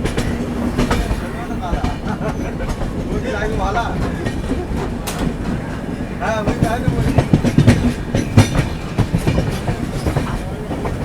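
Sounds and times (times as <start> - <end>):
train wheels clacking over rail joints: 0.0 - 11.0.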